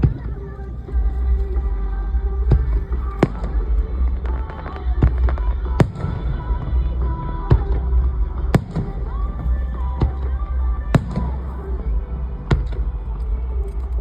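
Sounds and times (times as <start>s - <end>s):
faint music: 0.0s - 14.0s
low rumble: 0.0s - 14.0s
fireworks bangs: 2.5s - 13.4s.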